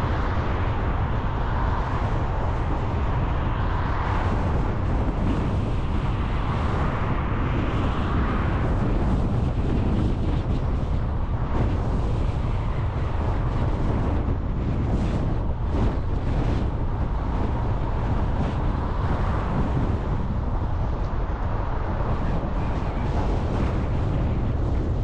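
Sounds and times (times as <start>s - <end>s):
road and wind noise: 0.0s - 25.0s.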